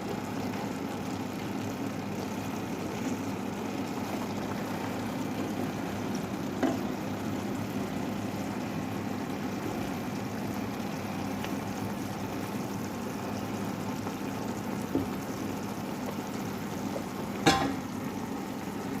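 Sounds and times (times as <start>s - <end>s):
food sizzling in a frying pan: 0.0s - 19.0s
utensil knocking against pan: 17.4s - 17.9s.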